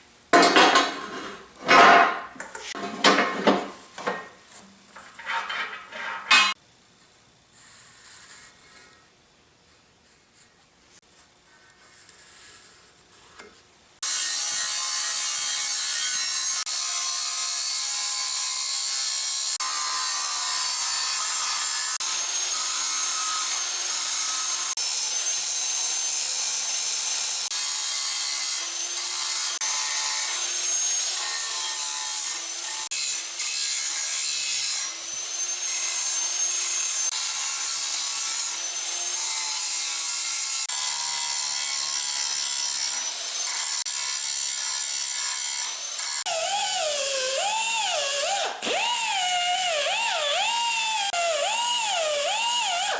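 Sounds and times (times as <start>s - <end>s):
angle grinder cutting steel: 5.2s - 6.6s, 14.0s - 52.9s.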